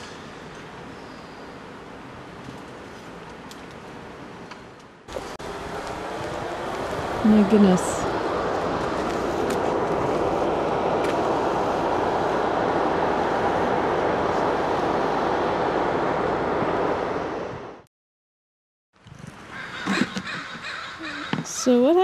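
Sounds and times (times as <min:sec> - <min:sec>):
shop vacuum running: 0:05.1 - 0:17.7.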